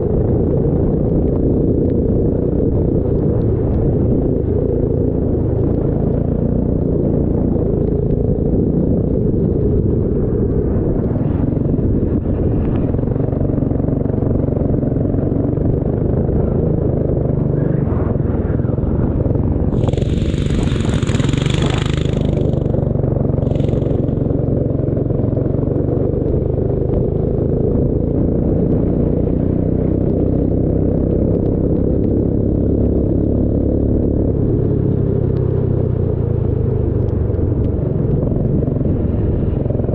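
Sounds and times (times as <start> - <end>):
racing engine running: 19.2 - 25.5
short hissing burst: 19.7 - 22.8, 23.4 - 24.2.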